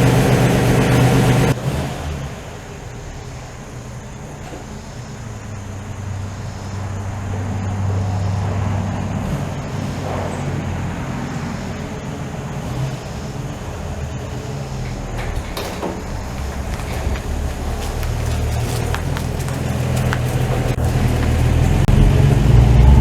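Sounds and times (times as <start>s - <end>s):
truck engine running: 0.0s - 23.0s
short knocks or rattles: 12.9s - 22.4s.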